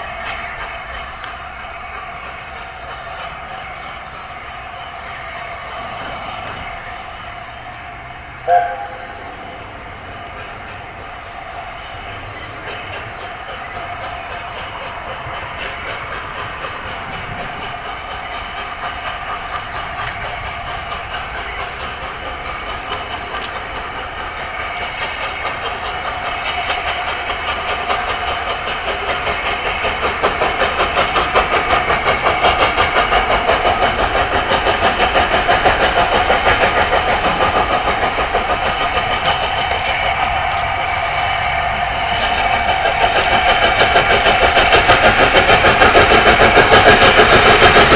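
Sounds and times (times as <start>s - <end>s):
hissing steam: 0.0s - 47.9s
locomotive exhaust chuffs: 0.0s - 47.9s.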